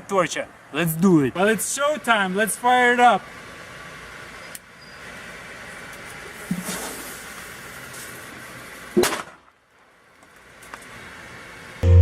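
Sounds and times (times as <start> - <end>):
firecracker bang: 9.0 - 9.5.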